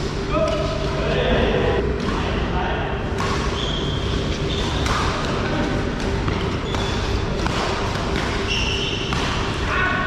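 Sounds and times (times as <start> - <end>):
sports hall hubbub: 0.0 - 10.0
rackets striking shuttlecock: 3.1 - 9.7
shoe squeaks: 3.5 - 4.8, 6.5 - 7.2, 8.4 - 9.1.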